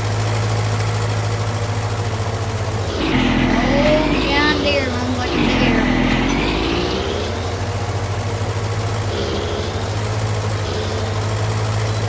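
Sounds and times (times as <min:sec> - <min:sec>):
garden tractor engine mowing: 0:02.8 - 0:12.0.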